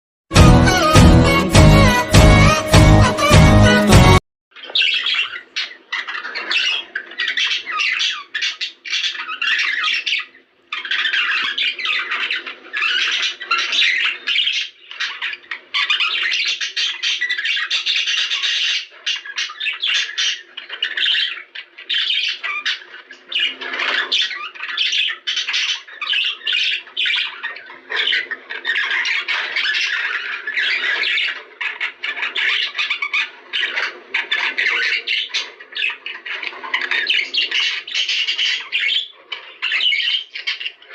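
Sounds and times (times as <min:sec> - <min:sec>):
budgerigars chattering and squawking: 0:00.4 - 0:40.9.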